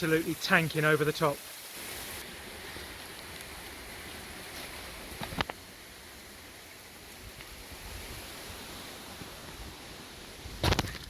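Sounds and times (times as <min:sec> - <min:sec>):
waterfall hiss: 0:00.0 - 0:11.0
wind rumbling on microphone: 0:02.0 - 0:11.0.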